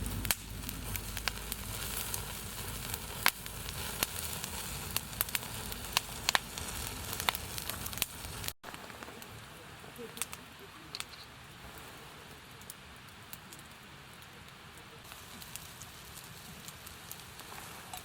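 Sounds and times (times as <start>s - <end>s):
sharp pops: 0.0s - 9.1s
sizzling and crackling over fire: 0.0s - 18.0s.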